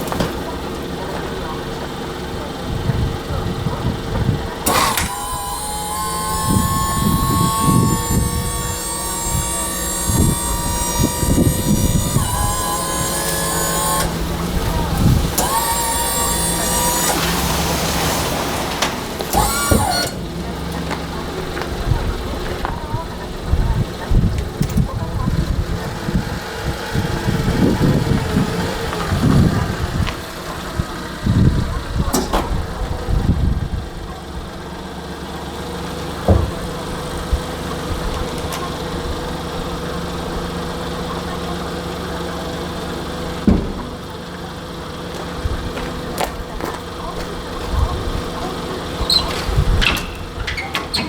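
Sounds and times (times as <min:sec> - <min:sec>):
small engine rumbling: 0:00.0 - 0:51.0
steady whine: 0:03.7 - 0:33.2.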